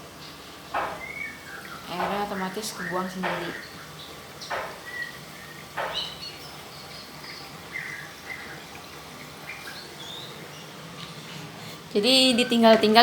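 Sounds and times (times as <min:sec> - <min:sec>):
water draining rush: 0:00.0 - 0:12.0
sharp knock: 0:00.8 - 0:01.2, 0:03.2 - 0:03.6, 0:04.5 - 0:04.9, 0:05.8 - 0:06.2.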